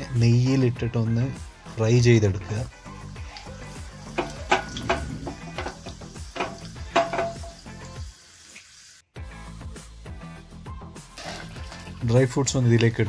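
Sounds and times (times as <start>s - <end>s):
nuts sizzling in hot fat: 1.6s - 9.1s, 11.1s - 13.0s
pan knocking on burner: 4.0s - 7.7s.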